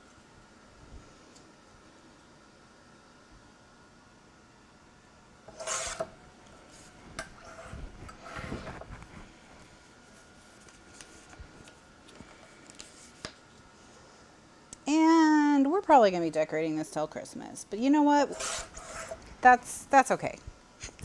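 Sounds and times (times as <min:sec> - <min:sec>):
paper being cut: 0:05.5 - 0:06.1, 0:18.3 - 0:19.2
rasping scrape: 0:05.5 - 0:06.2, 0:06.8 - 0:09.2, 0:18.2 - 0:19.3
paper rubbing and rustling: 0:06.7 - 0:09.4, 0:10.1 - 0:13.4.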